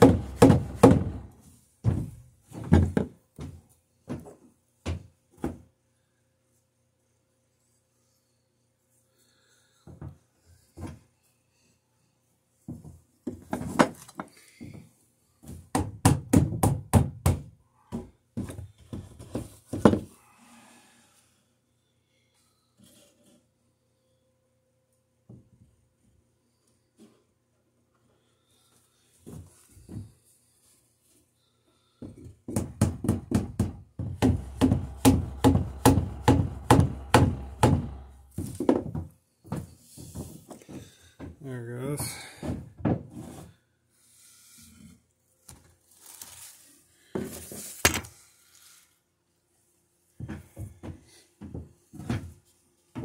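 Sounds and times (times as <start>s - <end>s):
clamp knocking on wood: 0.0s - 1.3s, 32.5s - 39.0s
low steady hum: 34.2s - 38.4s.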